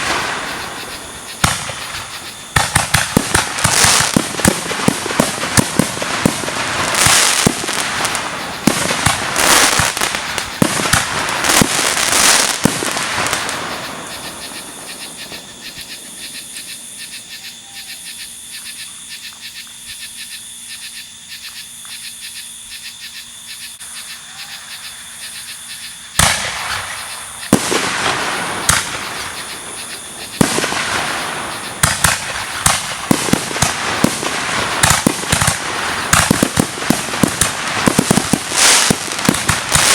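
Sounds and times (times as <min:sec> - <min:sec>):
loud firework bang: 0:00.0 - 0:11.8, 0:26.2 - 0:29.3
fireworks bursting and crackling: 0:00.0 - 0:16.9, 0:26.1 - 0:39.9
insects trilling: 0:00.0 - 0:39.9.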